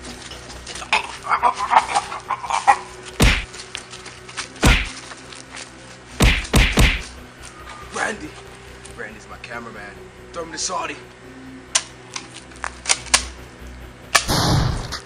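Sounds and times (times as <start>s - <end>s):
heavy thuds: 3.2s - 3.5s, 4.6s - 5.0s, 6.2s - 7.1s.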